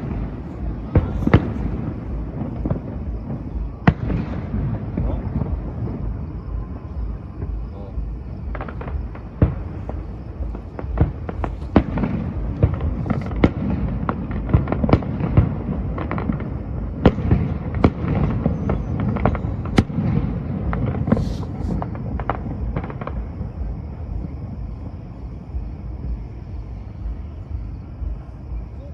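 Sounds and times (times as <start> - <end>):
firework shells cracking: 0.0 - 5.8
low booming rumble: 0.0 - 28.8.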